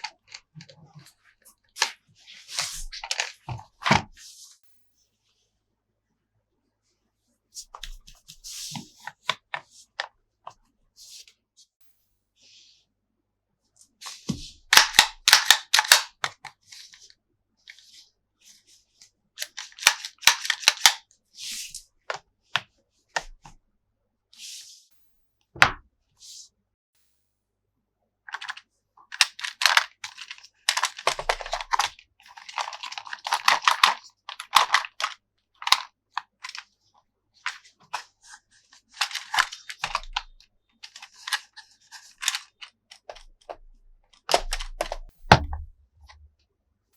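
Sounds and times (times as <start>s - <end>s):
plastic packaging clicks and crackling: 14.7s - 16.2s, 19.4s - 21.0s, 28.3s - 36.6s, 39.0s - 45.5s.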